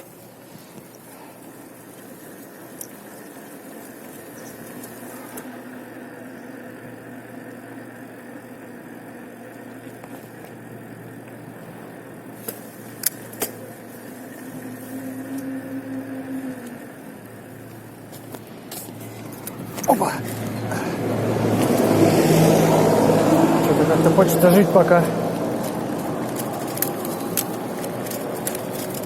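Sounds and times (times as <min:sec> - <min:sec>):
vehicle engine humming: 0:00.0 - 0:29.0
sharp clicks: 0:25.2 - 0:29.0.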